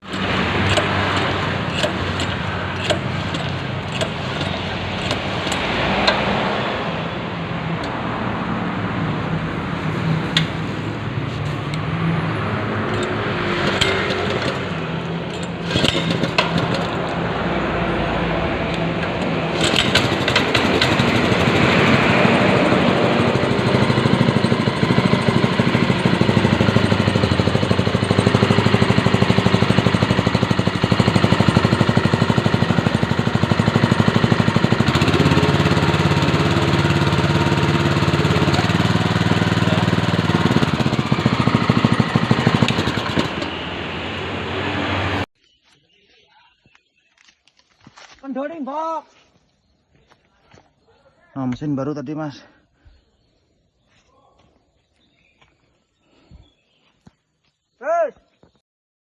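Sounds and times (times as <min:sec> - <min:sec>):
small petrol engine running: 0:00.0 - 0:08.0, 0:11.6 - 0:45.2.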